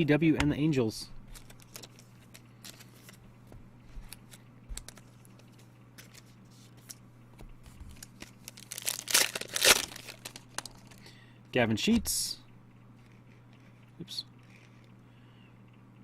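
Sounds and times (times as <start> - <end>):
steady low hum: 0.0 - 16.0
cards clicking and rustling: 1.2 - 3.2, 3.9 - 11.1
wrapper crinkling: 7.9 - 11.1.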